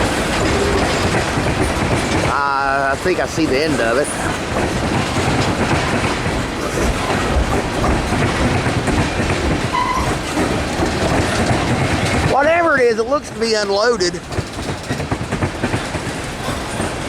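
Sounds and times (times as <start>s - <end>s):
train wheels clattering over rail joints: 0.0s - 17.0s.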